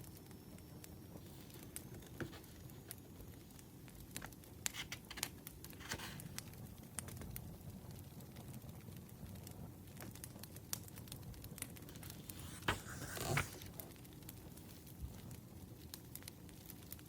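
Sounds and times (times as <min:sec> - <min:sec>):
firewood crackling and popping: 0:00.0 - 0:12.7, 0:13.6 - 0:17.0
low steady hiss: 0:00.0 - 0:17.0
soft rustle: 0:01.2 - 0:03.6, 0:04.2 - 0:06.4.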